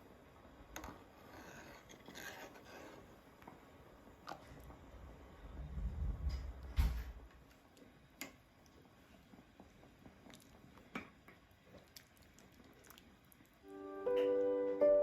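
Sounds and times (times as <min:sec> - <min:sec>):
soft chewing: 0:07.7 - 0:13.6.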